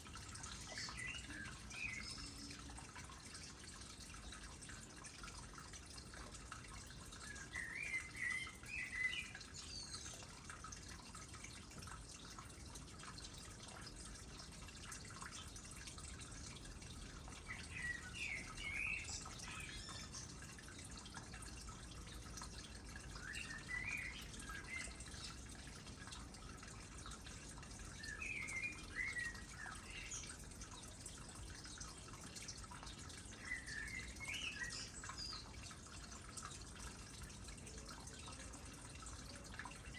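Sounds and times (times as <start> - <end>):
water trickling into pond: 0.0 - 39.9
songbird chirping: 0.3 - 2.8, 7.1 - 10.4, 17.4 - 20.5, 23.0 - 25.4, 27.8 - 30.4, 33.3 - 35.8.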